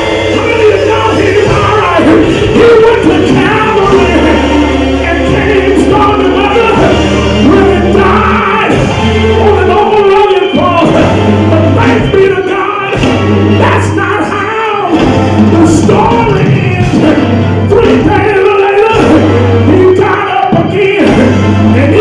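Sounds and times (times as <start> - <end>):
choir singing: 0.0 - 13.9
band playing: 0.0 - 22.0
held bass notes: 0.0 - 22.0.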